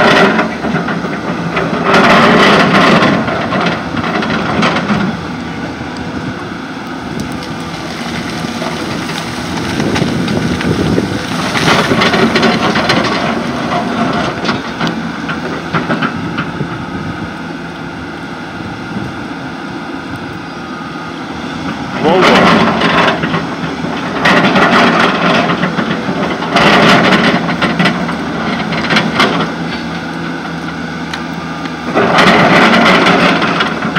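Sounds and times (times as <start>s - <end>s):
machine clanking and knocking: 0.0s - 5.2s, 8.6s - 16.7s, 21.9s - 30.0s, 31.9s - 33.9s
excavator diesel engine under load: 0.0s - 33.9s.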